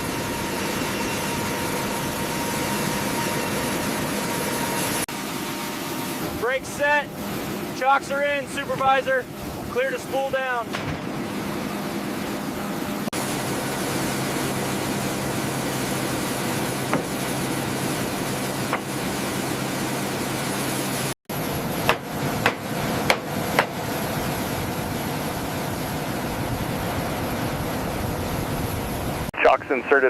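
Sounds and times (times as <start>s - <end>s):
aircraft turbine hum: 0.0s - 30.0s
high turbine whine: 0.0s - 30.0s
sharp knocks: 16.9s - 17.2s, 21.8s - 23.8s.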